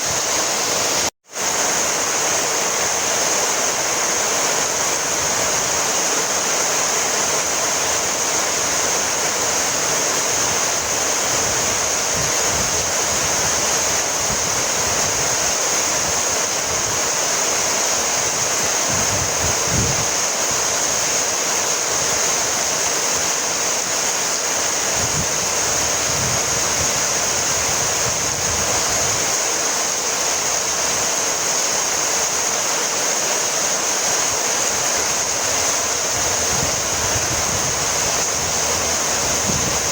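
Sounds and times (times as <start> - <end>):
heavy rain falling: 0.0 - 39.9
low rumbles: 36.2 - 39.9.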